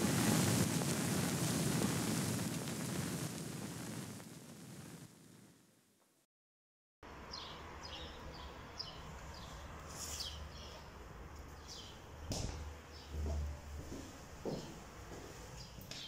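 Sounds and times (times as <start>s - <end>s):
birds chirping: 7.3s - 12.2s.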